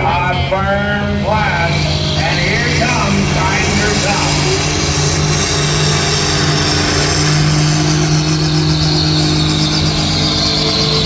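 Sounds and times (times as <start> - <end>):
tractor engine running hard: 0.0 - 11.0.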